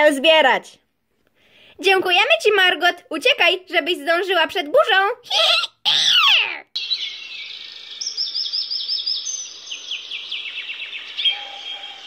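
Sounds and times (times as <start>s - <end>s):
songbirds singing: 6.8s - 12.0s.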